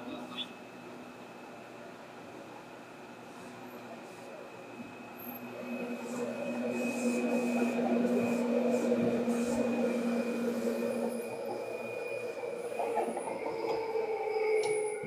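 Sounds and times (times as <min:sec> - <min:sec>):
electric train running: 0:00.0 - 0:15.0.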